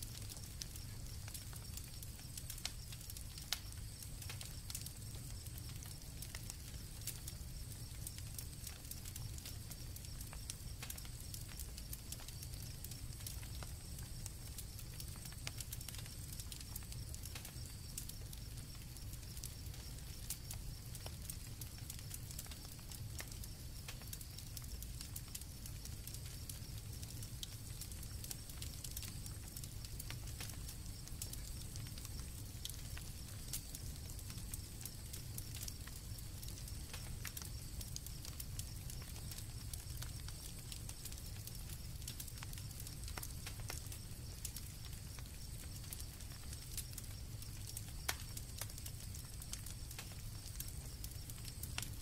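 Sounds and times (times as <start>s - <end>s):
campfire crackling: 0.0s - 52.0s
crickets chirping: 0.1s - 52.0s.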